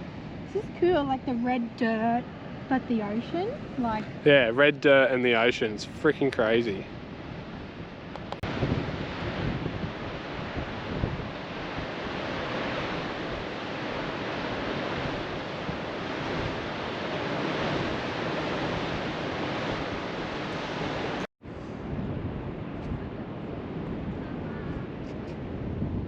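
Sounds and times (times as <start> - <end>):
wind buffeting microphone: 0.0 - 26.0
surf breaking on rocky shore: 7.6 - 21.3.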